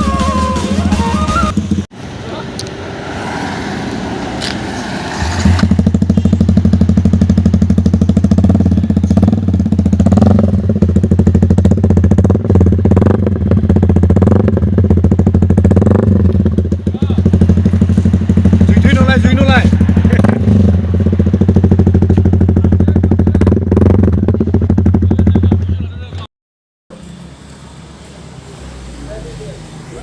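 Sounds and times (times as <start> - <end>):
motorcycle engine exhaust note: 5.6 - 26.1.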